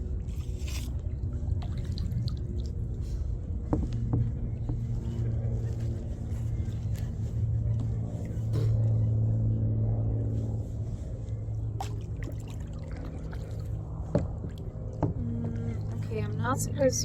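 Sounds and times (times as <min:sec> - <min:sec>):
engine-like hum: 0:00.0 - 0:17.0.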